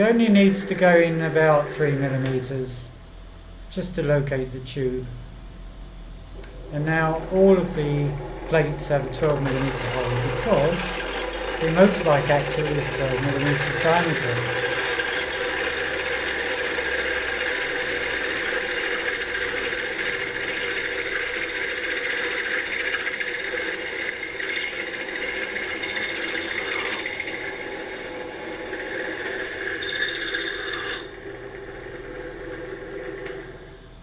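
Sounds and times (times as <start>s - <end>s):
electric drill boring metal: 0.0s - 2.5s, 6.4s - 33.9s.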